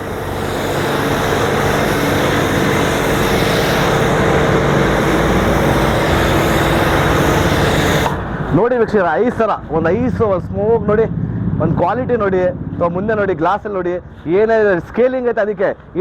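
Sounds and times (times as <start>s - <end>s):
foam spray hissing: 0.0s - 8.5s
pressure washer motor hum: 0.0s - 13.3s.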